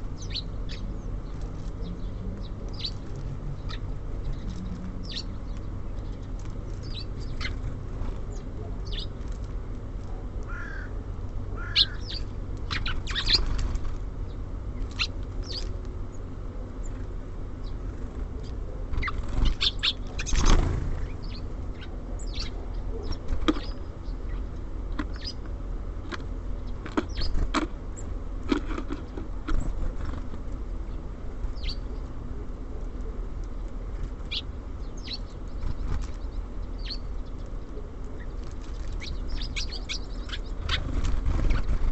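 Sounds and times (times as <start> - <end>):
songbirds chirping: 0.0 - 41.9
wings fluttering: 11.6 - 16.0, 17.8 - 23.9, 28.8 - 30.6, 35.2 - 41.9.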